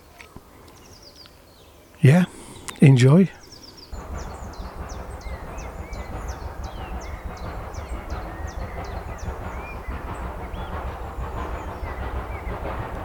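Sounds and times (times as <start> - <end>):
bird calling high falling notes: 3.8 - 13.0
steady low rumble: 3.8 - 13.0.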